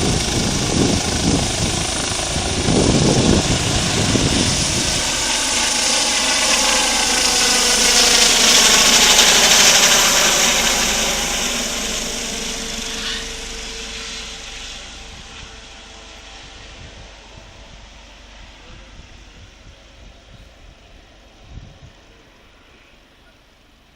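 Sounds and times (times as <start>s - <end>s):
helicopter flying past: 0.0s - 23.7s.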